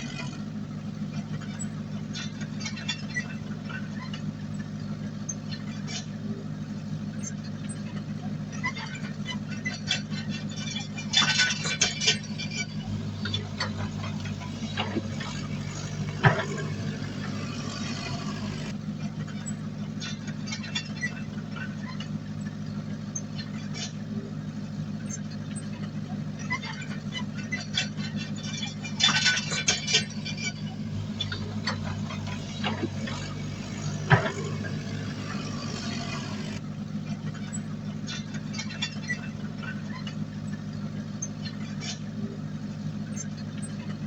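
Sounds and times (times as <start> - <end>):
heavy diesel engine running: 0.0 - 44.0
machinery rattles: 7.2 - 22.1, 26.4 - 36.6.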